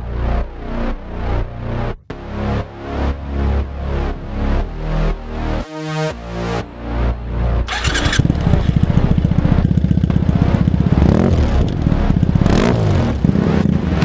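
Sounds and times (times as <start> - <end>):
motorcycle engine revving: 7.7 - 14.0.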